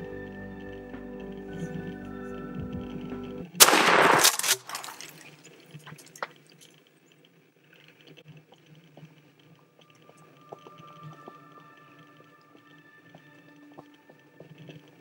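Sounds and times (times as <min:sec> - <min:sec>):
background music: 0:00.0 - 0:04.3, 0:09.8 - 0:15.0
shotgun blast echoing: 0:03.6 - 0:05.3
faint rustling and ticks: 0:05.0 - 0:15.0.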